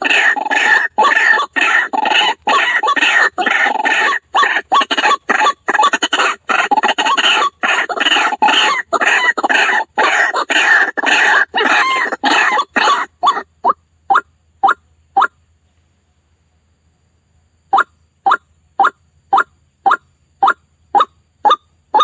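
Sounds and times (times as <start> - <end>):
waterhen harsh repeated calls: 0.0 - 15.4, 17.7 - 22.0.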